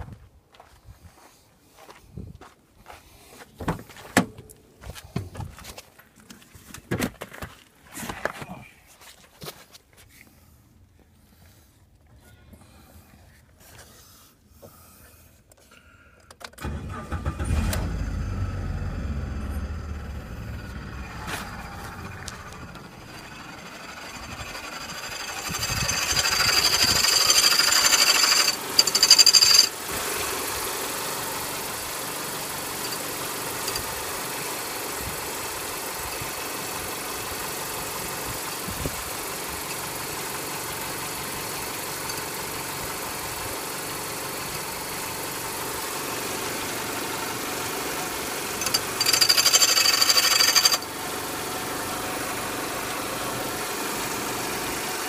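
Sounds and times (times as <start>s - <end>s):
car engine idling and revving: 16.6s - 55.0s.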